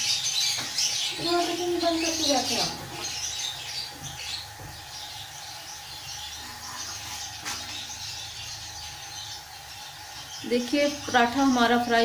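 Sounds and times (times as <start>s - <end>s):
oil sizzling on griddle: 0.0s - 11.8s.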